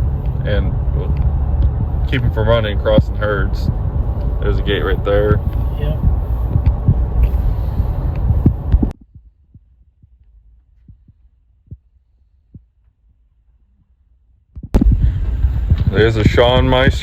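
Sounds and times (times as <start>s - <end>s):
low vehicle rumble: 0.0s - 9.0s, 14.8s - 17.0s
faint low thuds: 0.0s - 11.8s, 14.6s - 17.0s
wind noise: 0.0s - 11.8s, 14.6s - 17.0s.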